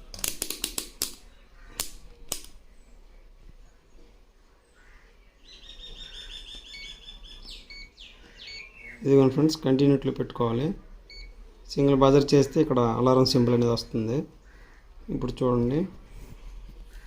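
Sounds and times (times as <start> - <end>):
rotary selector clicks: 0.1 - 1.2
bird chirping high notes: 5.5 - 9.1.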